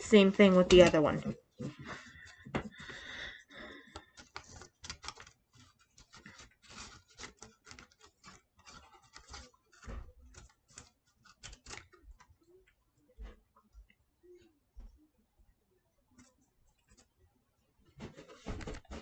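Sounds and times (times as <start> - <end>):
craft material crinkling by hand: 0.0 - 13.4.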